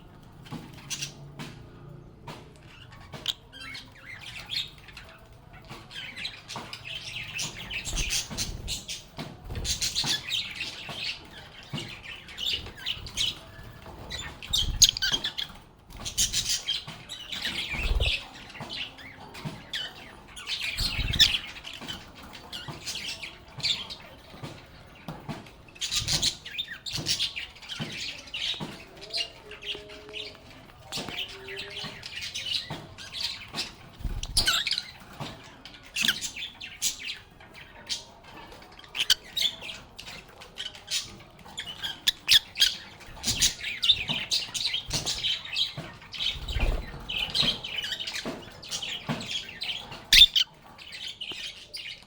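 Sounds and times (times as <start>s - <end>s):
lovebirds chirping and chattering: 0.0s - 52.0s
bird squawks: 50.1s - 50.5s.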